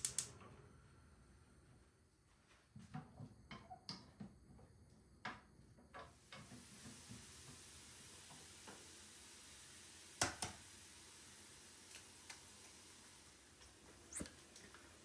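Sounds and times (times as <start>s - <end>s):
faint steady hiss: 4.0s - 15.0s.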